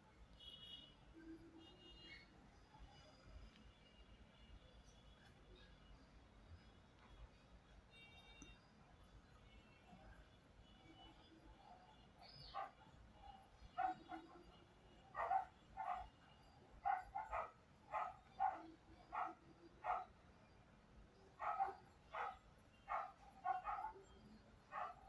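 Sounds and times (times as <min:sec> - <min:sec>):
dog barking faintly: 0:10.9 - 0:20.3, 0:21.1 - 0:25.0.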